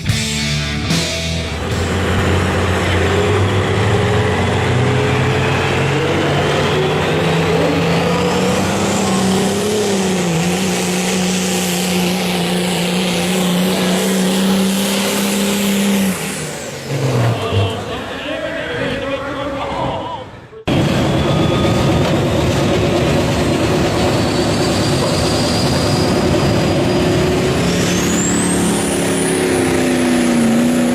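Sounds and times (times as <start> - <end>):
diesel truck engine at full load: 0.0 - 30.9.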